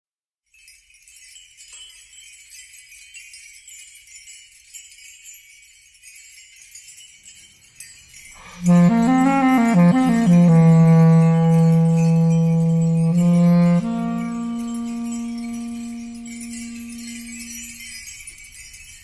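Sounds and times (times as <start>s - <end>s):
small bells jingling: 0.4s - 19.0s
music with low tone and melody: 8.4s - 17.8s.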